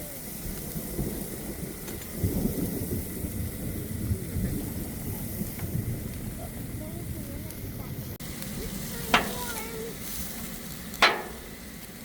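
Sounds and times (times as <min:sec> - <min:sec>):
rain hissing: 0:00.0 - 0:12.0
low rumble of thunder: 0:00.2 - 0:08.8.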